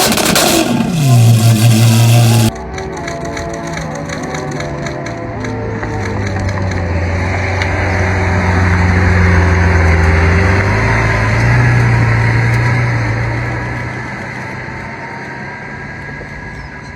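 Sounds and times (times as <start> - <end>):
car engine running at low revs: 0.0 - 2.6.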